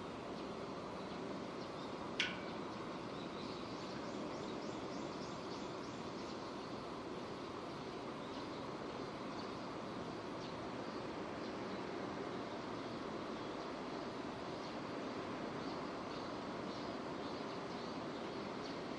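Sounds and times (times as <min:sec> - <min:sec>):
faint high ticks: 0:02.2 - 0:02.5.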